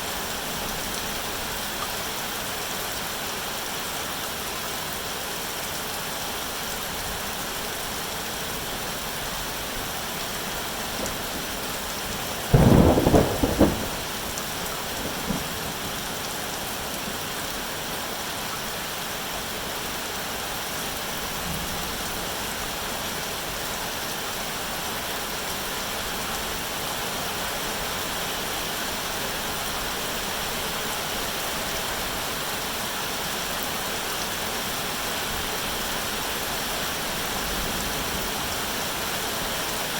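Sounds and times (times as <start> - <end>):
steady rain: 0.0 - 39.9
faint thunder rumbles: 10.6 - 16.3
thunder crack: 12.5 - 14.2.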